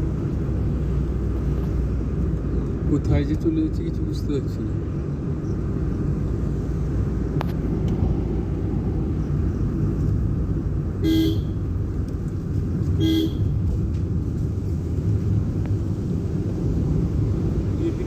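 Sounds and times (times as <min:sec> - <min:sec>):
vehicle driving rumble: 0:00.0 - 0:18.0
vehicle horn toots: 0:11.0 - 0:11.7, 0:13.0 - 0:13.6.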